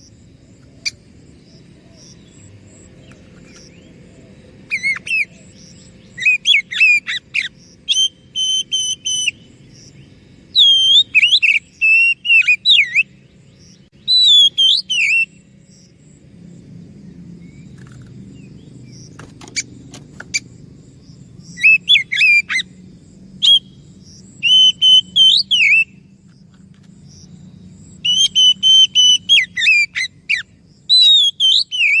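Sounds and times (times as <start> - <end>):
bird singing whistled phrases: 6.2 - 9.4, 10.5 - 13.2, 14.0 - 15.4, 21.6 - 22.7, 23.4 - 23.8, 24.4 - 26.0, 28.0 - 32.0.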